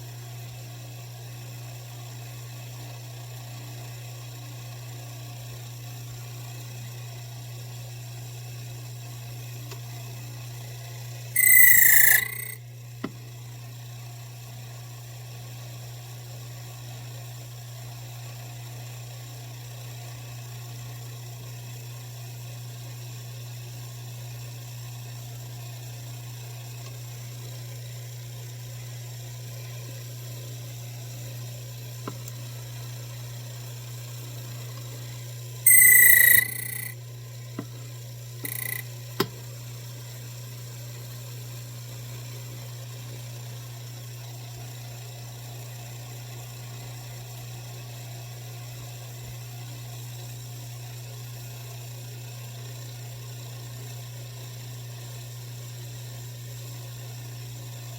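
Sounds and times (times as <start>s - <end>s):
small clicks: 11.4s - 12.6s, 35.7s - 36.9s, 38.5s - 38.8s.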